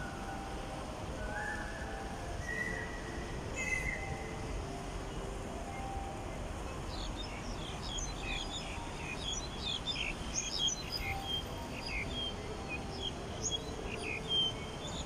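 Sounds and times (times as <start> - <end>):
low hum of city noise: 0.0 - 15.0
small birds chirping: 1.3 - 4.4, 6.8 - 15.0.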